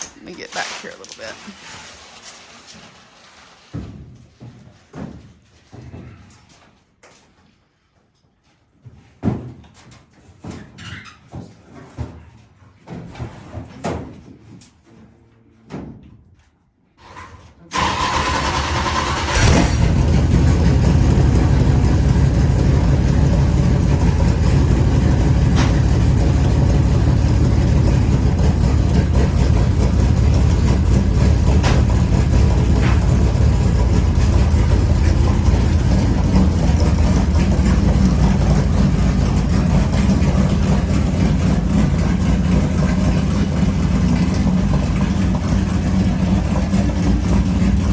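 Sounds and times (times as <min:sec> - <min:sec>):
starter motor cranking: 0:17.8 - 0:20.1
race car engine running loud: 0:17.8 - 0:47.9.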